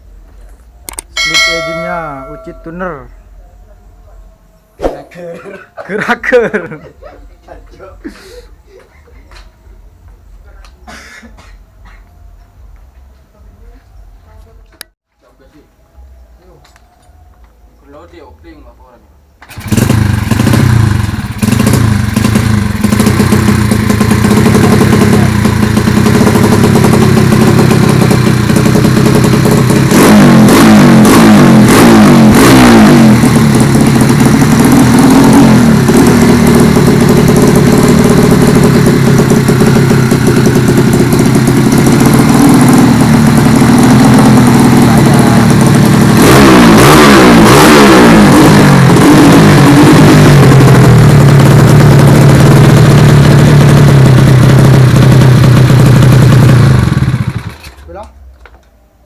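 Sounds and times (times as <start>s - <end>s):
motorcycle engine revving: 1.3s - 3.0s, 19.4s - 57.8s.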